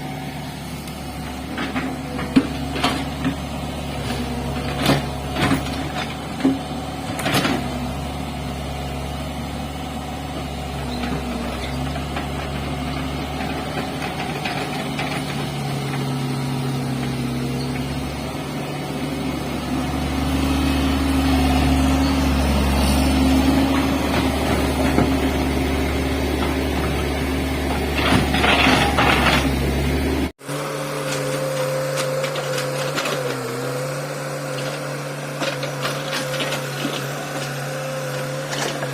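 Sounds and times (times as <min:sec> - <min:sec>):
excavator diesel engine running: 0:00.0 - 0:38.9
clatter: 0:27.7 - 0:29.5.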